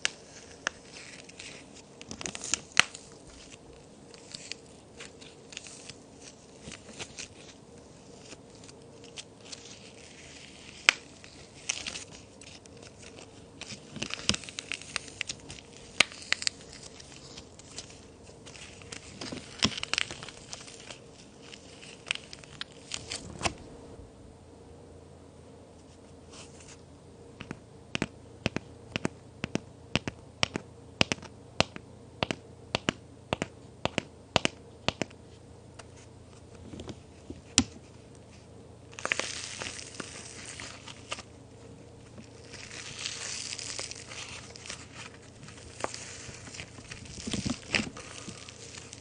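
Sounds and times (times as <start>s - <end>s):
cookies crunching and crumbling: 0.0s - 23.3s, 35.8s - 49.0s
sharp clicks of hard cookies: 27.4s - 35.2s.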